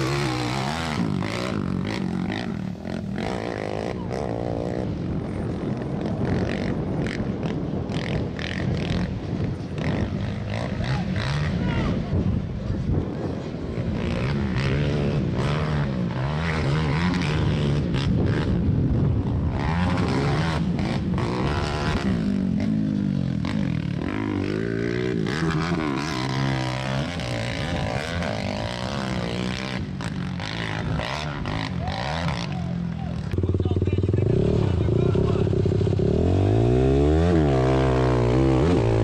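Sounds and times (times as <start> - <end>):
atv engines revving: 0.0 - 39.0.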